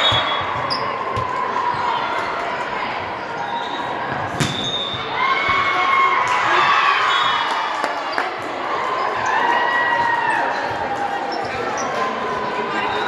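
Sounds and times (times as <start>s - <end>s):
crowd noise in a gym: 0.0s - 13.0s
volleyball hit: 4.3s - 4.9s.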